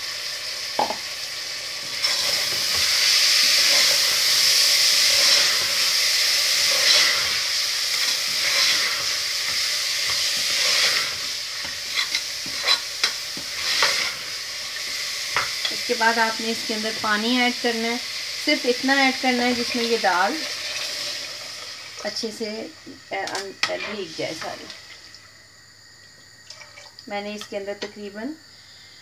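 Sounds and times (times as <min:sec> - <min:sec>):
lentils sizzling in hot oil: 0:00.0 - 0:25.4
spoon knocking and scraping pot: 0:11.6 - 0:14.1, 0:15.3 - 0:15.7.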